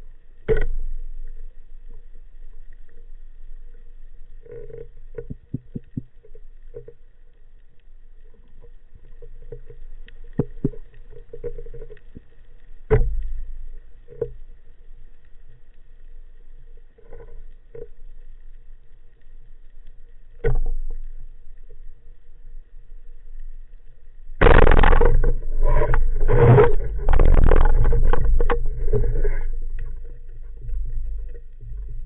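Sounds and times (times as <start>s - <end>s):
muffled underwater knocks and clicks: 0.4s - 3.1s, 3.7s - 7.1s, 8.2s - 14.5s, 20.3s - 21.9s, 24.4s - 32.0s
strong dull thumps: 24.4s - 28.6s.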